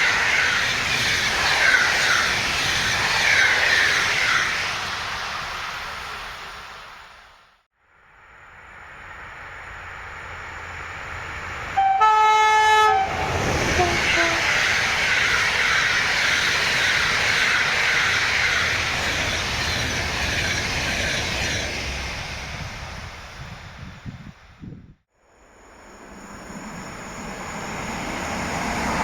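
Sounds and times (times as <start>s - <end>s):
train wheels rushing on rails: 0.0s - 7.7s, 8.5s - 24.9s, 25.5s - 29.0s
train horn blast: 11.8s - 14.5s.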